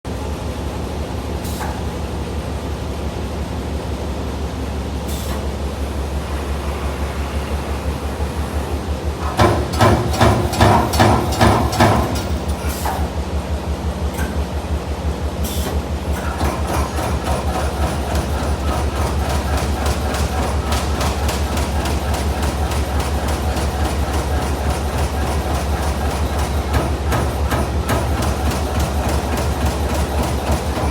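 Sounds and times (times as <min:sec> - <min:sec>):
punch press punching sheet metal: 0:09.2 - 0:13.0.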